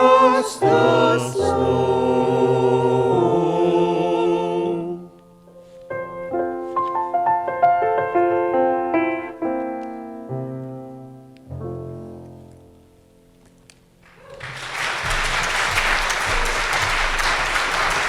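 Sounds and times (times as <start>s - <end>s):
choir singing: 0.0s - 5.2s
piano playing: 0.0s - 14.1s.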